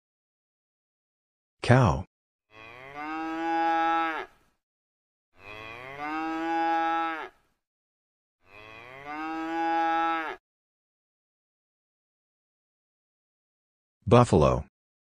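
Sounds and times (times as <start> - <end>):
cow mooing: 2.5 - 4.5, 5.4 - 7.5, 8.4 - 10.4.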